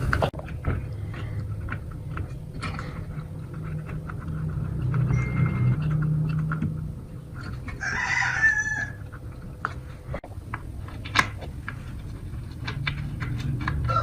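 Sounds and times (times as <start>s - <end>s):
low steady hum: 0.0s - 14.0s
rooster crowing: 7.7s - 9.1s.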